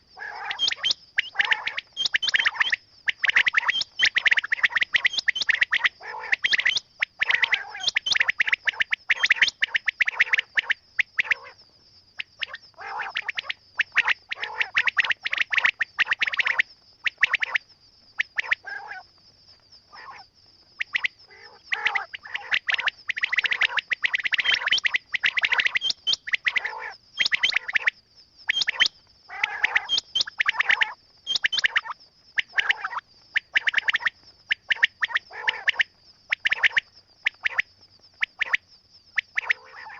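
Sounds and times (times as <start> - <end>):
quail calling: 0.0 - 10.6, 12.4 - 16.5, 18.3 - 19.0, 20.8 - 27.8, 28.5 - 31.8, 32.4 - 33.0, 33.6 - 35.8, 39.4 - 39.9.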